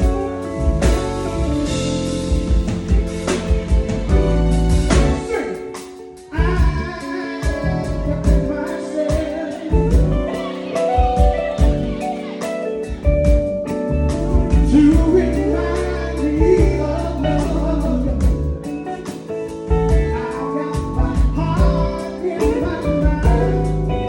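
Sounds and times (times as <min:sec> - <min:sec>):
steady beat: 0:00.0 - 0:18.6, 0:19.7 - 0:23.7
band playing a song: 0:00.0 - 0:24.0
guitar: 0:00.0 - 0:24.0
person singing: 0:05.1 - 0:24.0.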